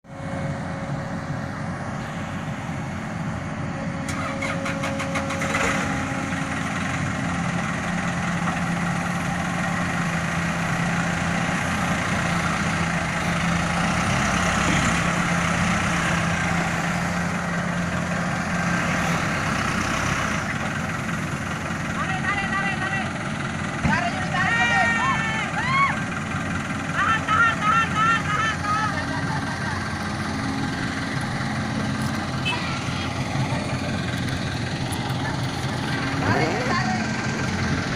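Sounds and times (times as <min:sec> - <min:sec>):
vehicle engine running: 0:00.0 - 0:37.9.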